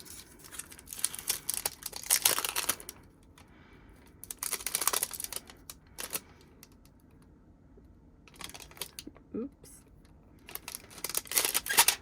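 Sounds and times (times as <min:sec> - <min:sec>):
packaging crinkling and rustling: 0:00.0 - 0:03.4, 0:04.1 - 0:06.8, 0:08.3 - 0:09.1, 0:10.4 - 0:12.0.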